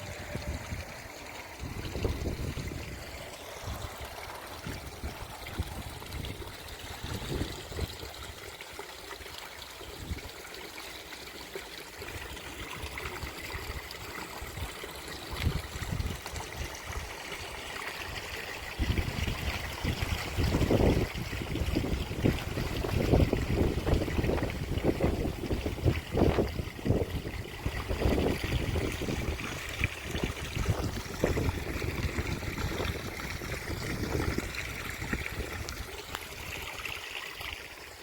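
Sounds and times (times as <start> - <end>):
wind buffeting microphone: 0.0 - 8.4, 15.3 - 17.1, 18.1 - 36.8
water trickling over rock: 0.0 - 38.0.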